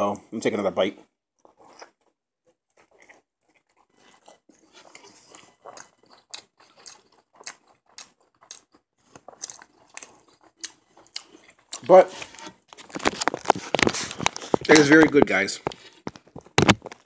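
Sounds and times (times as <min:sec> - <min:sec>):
person chewing crunchy sandwich: 0:01.4 - 0:14.9.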